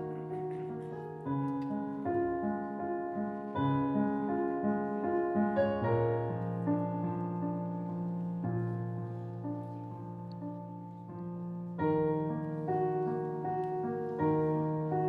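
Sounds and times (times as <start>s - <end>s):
solo piano playing: 0.0s - 15.0s.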